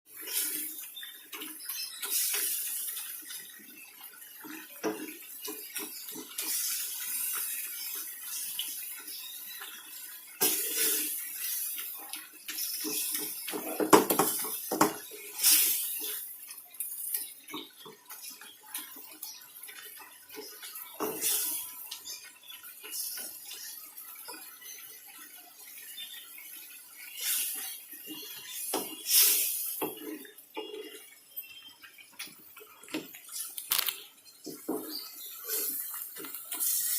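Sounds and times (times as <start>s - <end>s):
water running from kitchen tap: 0.1s - 36.9s
bowls and pans clattering in sink: 12.9s - 15.1s.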